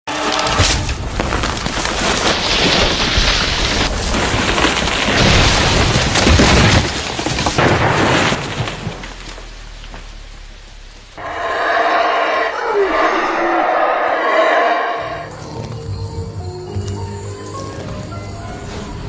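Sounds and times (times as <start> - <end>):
loud booms and crashing rumble: 0.6 - 9.5.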